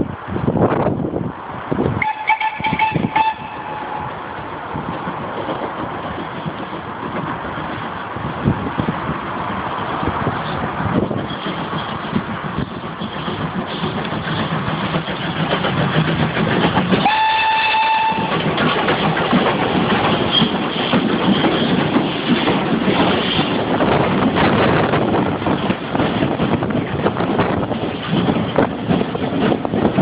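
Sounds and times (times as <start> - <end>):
steam locomotive exhaust: 1.9 - 4.5, 12.6 - 24.0
steam whistle blast: 2.0 - 4.1, 17.0 - 18.3
train wheels clattering: 2.0 - 30.0.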